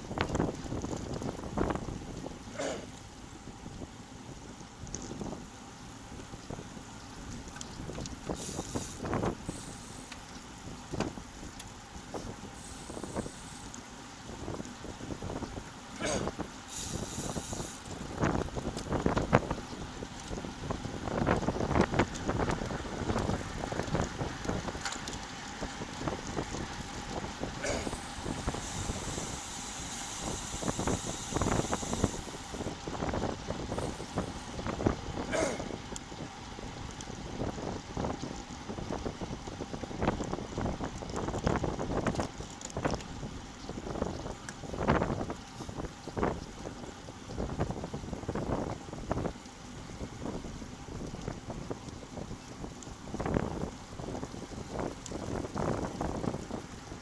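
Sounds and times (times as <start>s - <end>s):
wind rushing over microphone: 0.0s - 2.9s, 14.3s - 24.8s, 25.5s - 57.0s
bike tyres rumbling on road: 0.0s - 57.0s
steady high hiss: 8.3s - 18.6s, 27.6s - 32.9s, 33.5s - 35.9s.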